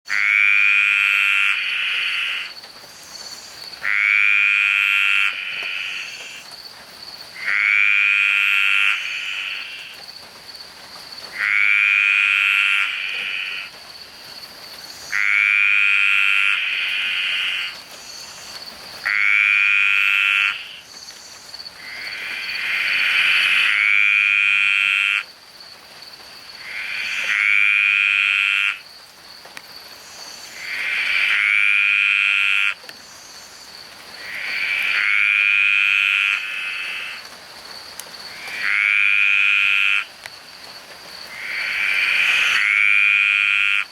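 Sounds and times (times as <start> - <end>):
frog rasping croak: 0.1 - 6.4, 7.4 - 10.0, 11.3 - 13.8, 15.0 - 20.9, 21.6 - 25.3, 26.5 - 28.8, 30.2 - 32.9, 34.1 - 37.4, 38.3 - 40.2, 41.3 - 43.9.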